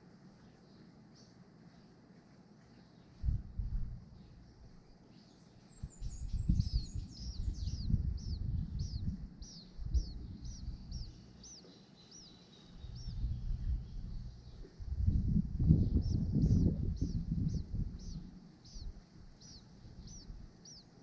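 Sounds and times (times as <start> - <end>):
low rumble: 3.2 - 4.6, 6.1 - 11.4, 12.8 - 20.6
small bird whistling: 5.7 - 13.5, 15.9 - 20.9.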